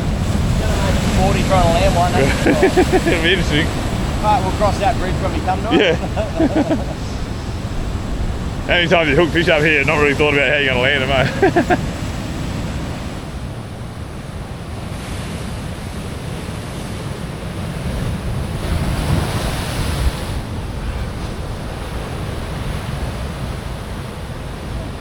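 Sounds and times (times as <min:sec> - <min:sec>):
ocean surf breaking on rocks: 0:00.0 - 0:25.0
wind buffeting microphone: 0:00.0 - 0:25.0.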